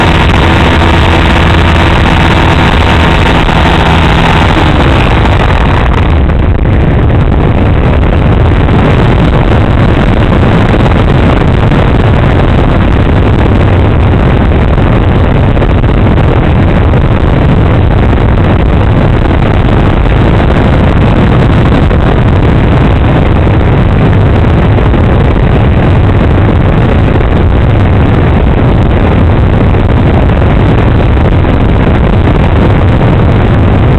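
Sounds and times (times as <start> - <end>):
model plane motor humming: 0.0 - 5.8
wind buffeting microphone: 0.0 - 33.9.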